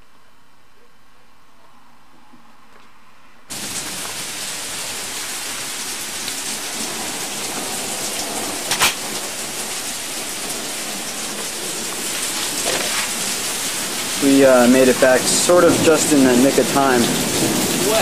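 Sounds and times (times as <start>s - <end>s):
heavy rain pattering: 3.5s - 18.0s.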